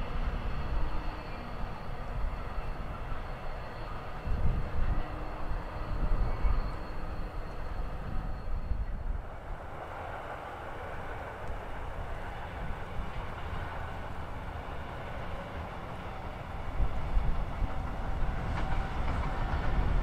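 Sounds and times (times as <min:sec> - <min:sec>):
train rumbling with faint whine: 0:00.0 - 0:20.0
wind buffeting microphone: 0:00.0 - 0:20.0.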